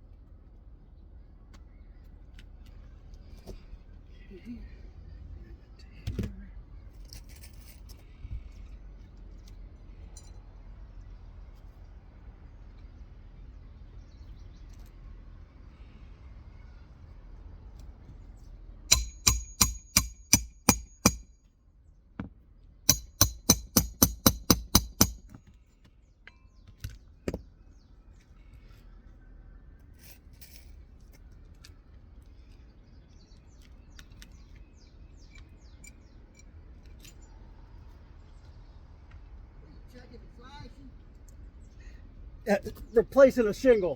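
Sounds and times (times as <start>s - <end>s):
hammer driving nails: 18.9s - 21.3s, 22.9s - 25.4s.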